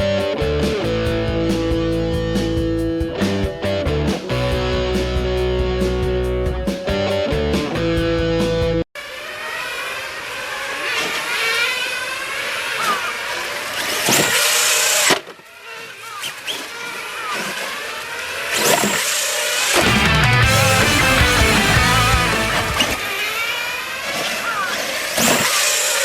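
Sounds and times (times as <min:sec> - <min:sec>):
electric motor whine: 0:09.0 - 0:26.0
tyre and ground noise: 0:10.0 - 0:25.6.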